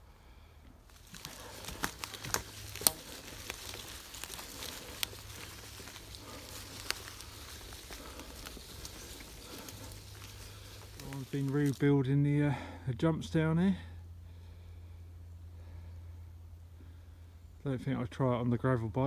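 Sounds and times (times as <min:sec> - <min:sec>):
grit and twigs crackling: 0:00.6 - 0:12.8
bike tyres rolling on gravel: 0:00.8 - 0:12.7.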